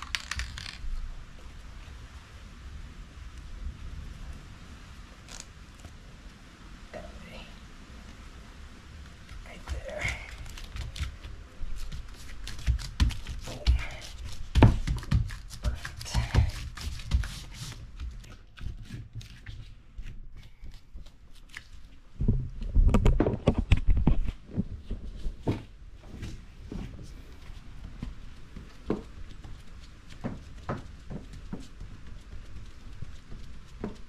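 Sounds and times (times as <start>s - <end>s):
foam crinkling and tearing: 0.0s - 0.9s.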